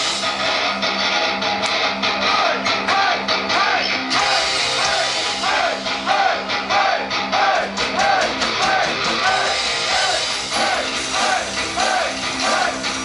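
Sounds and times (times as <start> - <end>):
repeating melodic guitar figure: 0.0 - 7.8
rock band playing live: 0.0 - 13.0.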